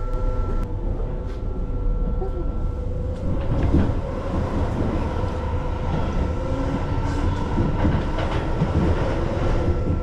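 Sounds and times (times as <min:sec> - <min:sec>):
train wheels rumbling on rails: 0:00.9 - 0:10.0
rail clicks: 0:03.1 - 0:10.0.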